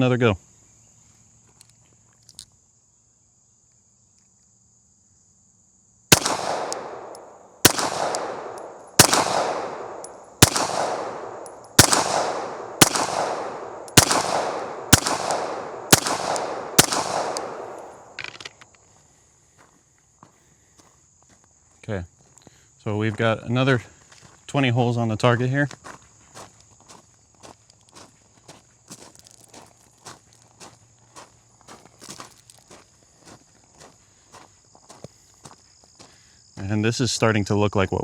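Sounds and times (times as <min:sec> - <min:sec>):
insect drone: 0:00.0 - 0:38.0
pistol shots echoing: 0:06.1 - 0:18.2.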